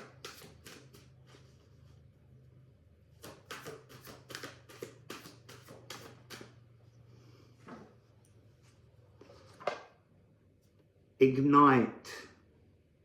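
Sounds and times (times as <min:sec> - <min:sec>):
cards being shuffled: 0:00.0 - 0:01.6, 0:03.1 - 0:06.6.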